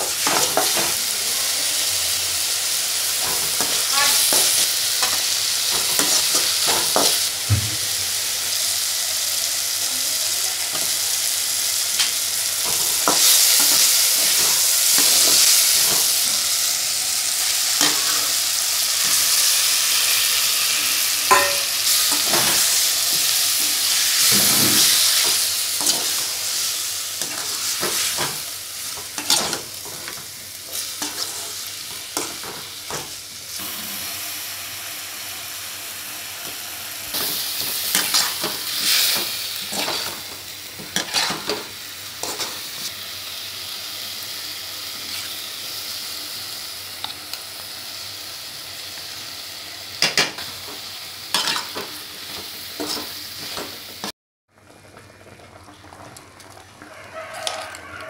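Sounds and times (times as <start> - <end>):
onions sizzling in oil: 0.0 - 58.0
spoon knocking on a pot: 21.3 - 21.7.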